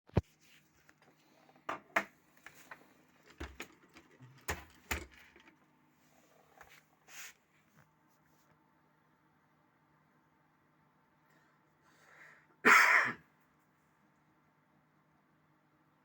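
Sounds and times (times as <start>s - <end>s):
handling clicks and knocks: 1.7s - 5.6s.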